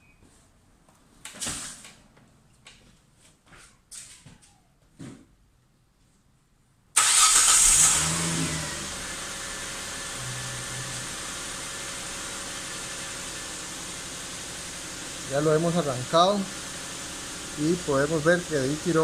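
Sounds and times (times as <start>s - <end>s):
car engine starting and idling: 7.0s - 19.0s.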